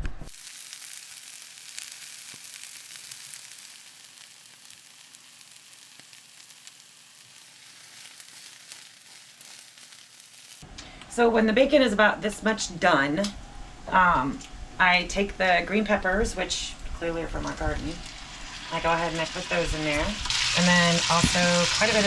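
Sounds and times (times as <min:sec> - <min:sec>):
bacon sizzling in a pan: 0:00.1 - 0:10.6, 0:18.0 - 0:22.0.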